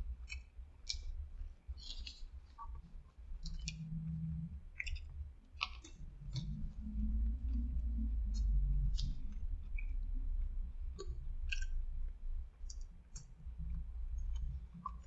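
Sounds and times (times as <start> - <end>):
person chewing food: 0.2 - 4.0, 4.7 - 15.0
wet mouth clicks and smacks: 1.8 - 2.7, 3.4 - 3.8, 4.8 - 6.6, 11.0 - 11.8.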